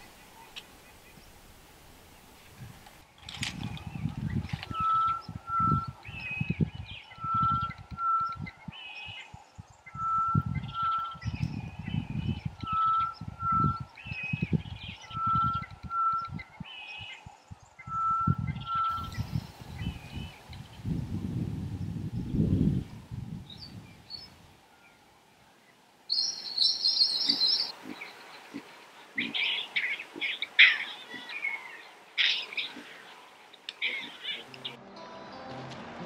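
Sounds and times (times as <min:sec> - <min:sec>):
high bird chirps: 0:26.1 - 0:28.3.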